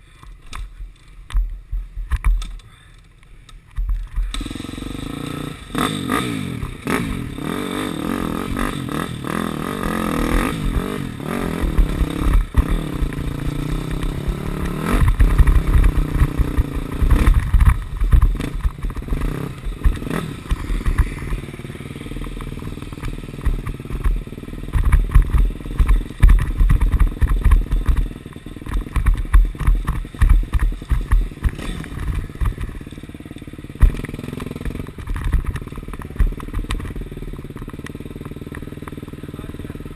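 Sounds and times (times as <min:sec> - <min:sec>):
motorcycle engine revving: 0:03.8 - 0:39.9.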